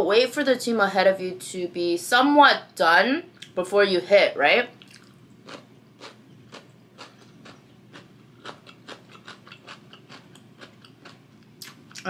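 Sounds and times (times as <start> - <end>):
chewing noodles: 4.8 - 12.0.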